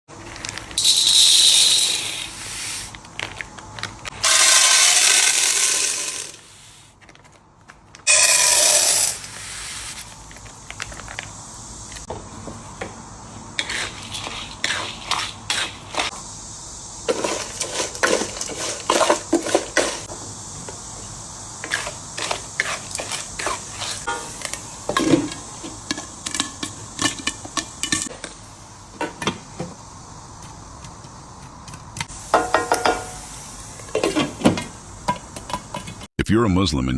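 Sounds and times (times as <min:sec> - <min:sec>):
popcorn popping in a pot: 0:00.8 - 0:02.2, 0:04.2 - 0:06.4.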